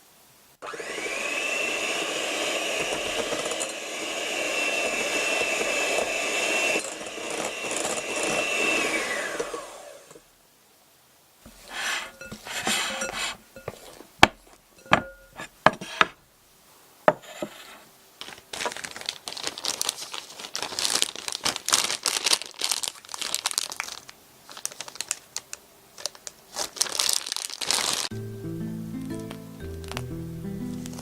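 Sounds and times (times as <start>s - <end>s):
crinkling and crumpling: 18.2s - 28.1s, 29.2s - 31.0s.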